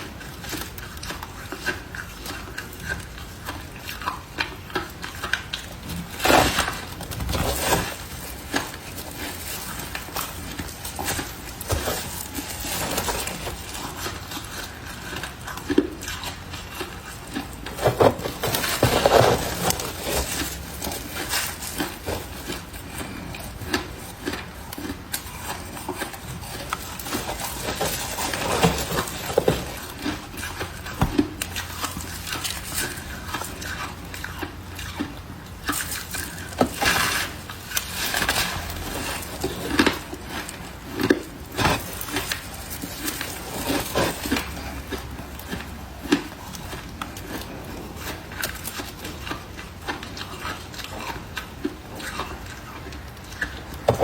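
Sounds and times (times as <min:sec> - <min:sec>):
objects knocking and scraping: 0:05.8 - 0:14.2, 0:17.6 - 0:24.9, 0:25.8 - 0:33.1, 0:53.6 - 0:54.0.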